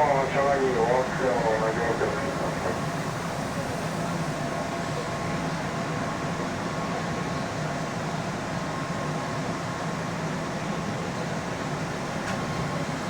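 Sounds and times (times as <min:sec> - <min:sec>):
faint steady whine: 0:00.0 - 0:04.6
train rumble and hiss: 0:00.0 - 0:13.0.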